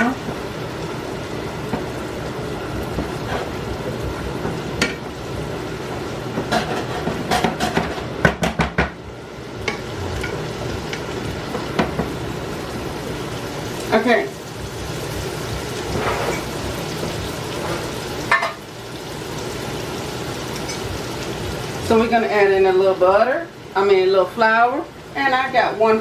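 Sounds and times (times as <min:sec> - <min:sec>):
vegetables sizzling in a frying pan: 0:00.0 - 0:26.0
utensil scraping a pan: 0:03.1 - 0:03.6, 0:06.4 - 0:08.2, 0:15.8 - 0:16.6.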